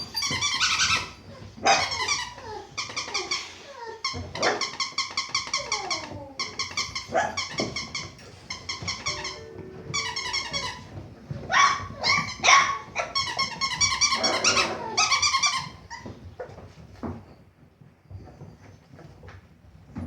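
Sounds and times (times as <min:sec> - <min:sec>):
squeaky toy squeaking: 0:00.0 - 0:16.2
puppy growls and yips: 0:00.1 - 0:09.4, 0:11.4 - 0:16.6.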